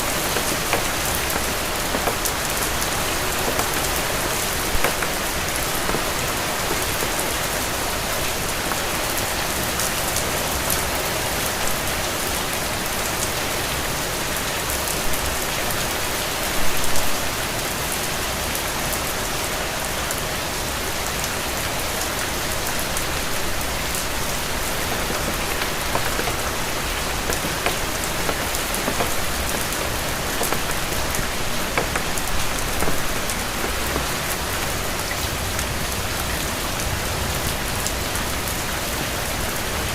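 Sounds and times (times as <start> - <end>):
rain drop taps: 0.0 - 10.3, 22.7 - 35.3
steady rain falling: 0.0 - 39.9.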